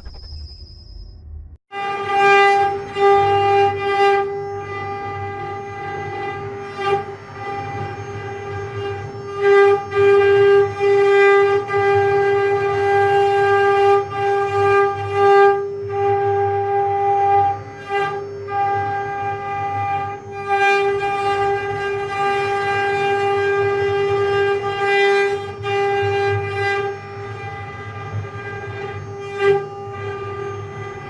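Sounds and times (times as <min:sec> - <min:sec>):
router spindle whining: 0:02.8 - 0:31.0.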